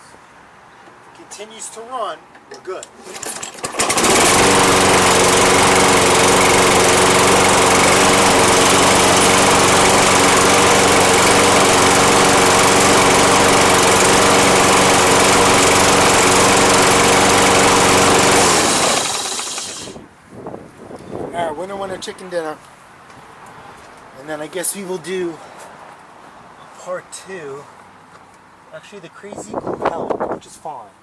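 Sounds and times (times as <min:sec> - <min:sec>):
lawn mower engine running: 0:03.0 - 0:20.2
engine winding down: 0:03.1 - 0:20.1.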